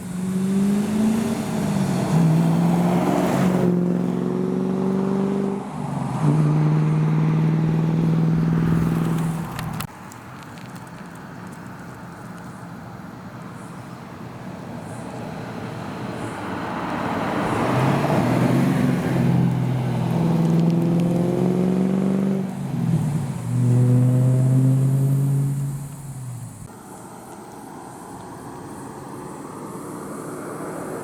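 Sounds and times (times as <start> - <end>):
car engine running loud: 0.0 - 9.9, 14.6 - 26.7.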